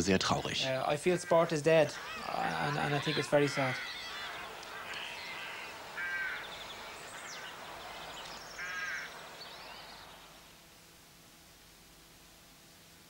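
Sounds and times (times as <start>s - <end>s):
bird calls: 0.4s - 10.6s
high bird chirps: 1.2s - 10.4s.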